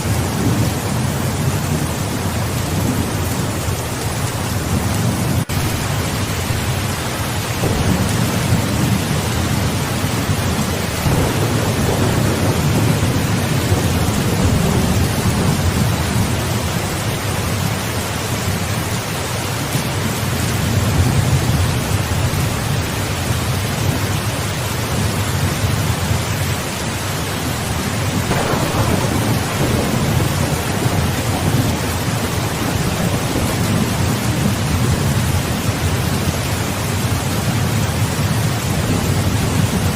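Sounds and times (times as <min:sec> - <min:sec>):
heavy rain: 0:00.0 - 0:39.9
rolling thunder: 0:04.6 - 0:17.8, 0:27.8 - 0:36.5.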